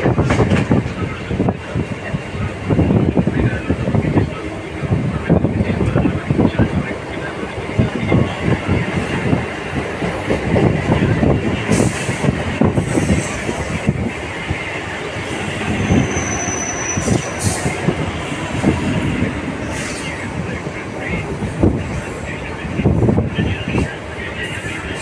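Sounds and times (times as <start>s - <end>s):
train wheels clattering over rails: 0.0s - 24.0s
high wheel squeal: 15.4s - 17.8s.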